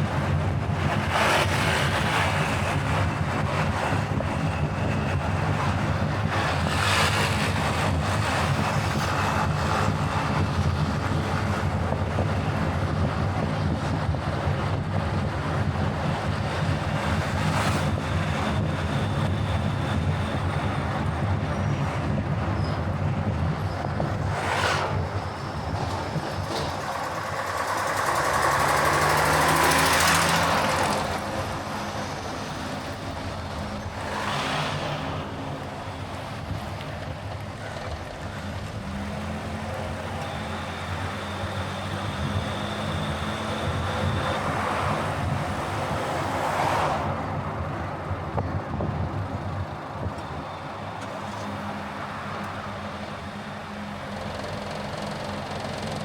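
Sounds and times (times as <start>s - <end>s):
car engine and tyre noise: 0.0s - 56.0s.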